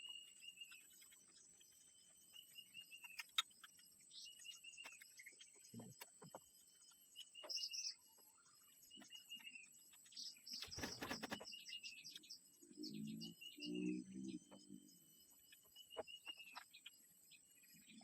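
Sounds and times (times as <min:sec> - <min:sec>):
small birds chirping: 0:00.0 - 0:18.0
crackling noise: 0:10.5 - 0:11.5.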